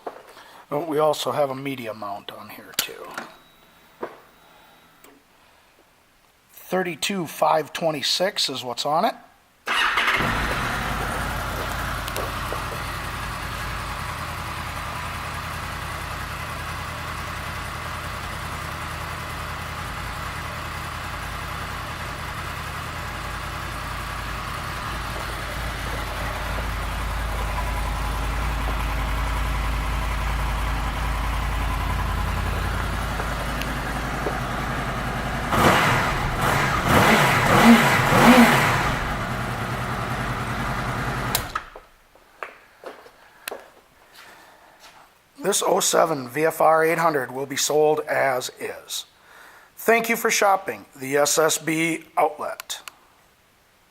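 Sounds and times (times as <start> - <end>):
motorcycle engine idling and revving: 9.7 - 41.8.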